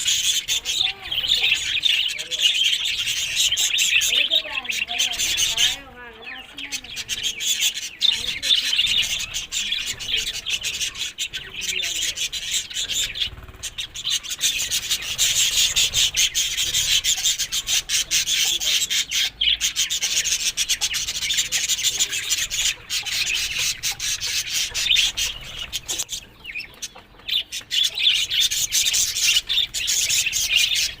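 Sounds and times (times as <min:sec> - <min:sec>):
budgerigars chattering: 0:00.0 - 0:31.0.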